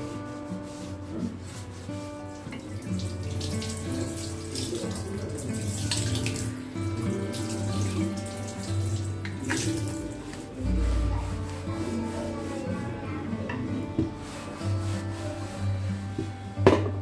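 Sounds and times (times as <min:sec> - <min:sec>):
soft background music: 0:00.0 - 0:17.0
tap running and splashing: 0:02.2 - 0:10.6, 0:16.2 - 0:17.0.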